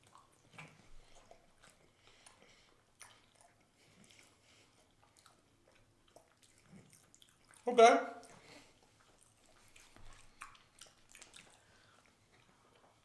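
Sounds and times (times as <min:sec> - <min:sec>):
faint chewing: 0:00.0 - 0:13.0.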